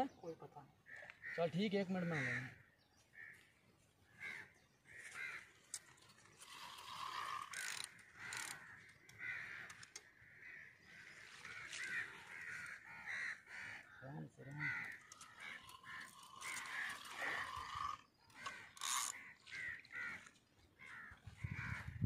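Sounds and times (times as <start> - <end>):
short arched bird calls: 0.0 - 21.9
scraping or clicking noises: 5.7 - 8.7, 14.9 - 20.4.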